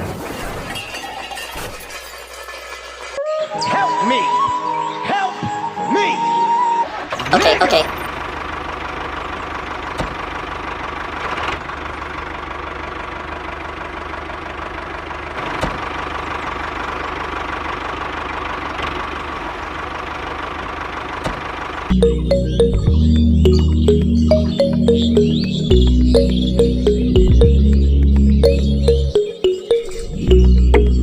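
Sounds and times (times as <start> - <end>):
music: 3.2 - 6.9, 21.9 - 31.0
engine idling: 7.0 - 29.2.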